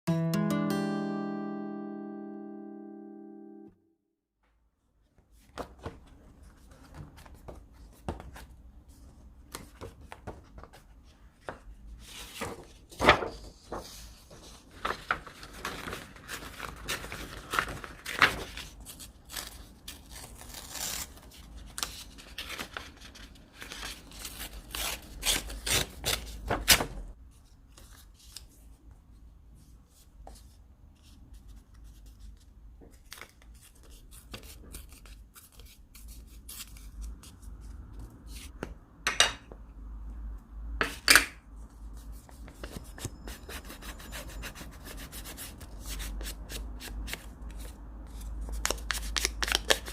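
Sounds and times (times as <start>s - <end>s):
paper rustling: 5.3s - 24.6s.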